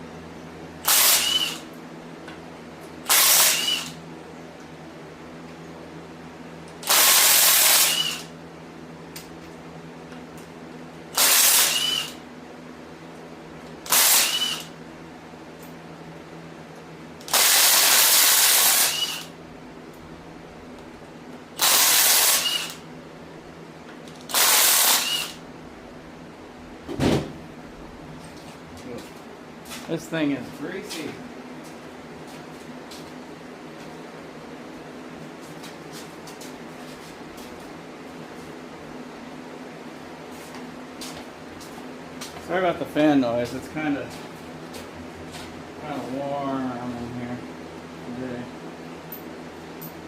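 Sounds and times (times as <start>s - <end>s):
fan humming: 0.0s - 50.0s
compressed air blow gun blasts: 0.8s - 1.6s, 3.1s - 4.0s, 6.8s - 8.3s, 11.2s - 12.2s, 17.3s - 19.3s, 21.6s - 22.8s, 24.3s - 25.4s.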